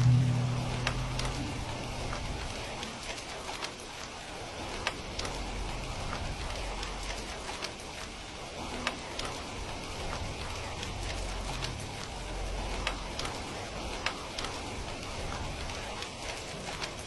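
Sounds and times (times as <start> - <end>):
steady rain: 0.0 - 17.0
wood fire crackling: 0.0 - 17.0.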